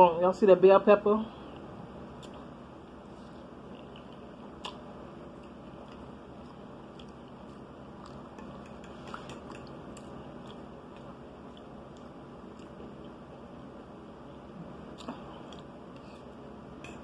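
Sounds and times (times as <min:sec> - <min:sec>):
steady background noise: 0:00.0 - 0:17.0
person chewing food: 0:01.5 - 0:13.6, 0:14.2 - 0:17.0
fork clicking on plate: 0:08.0 - 0:10.6.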